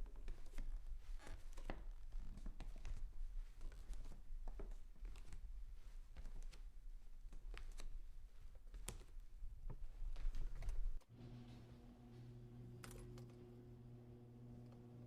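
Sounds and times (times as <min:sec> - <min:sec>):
electrical hum: 0:10.8 - 0:15.0.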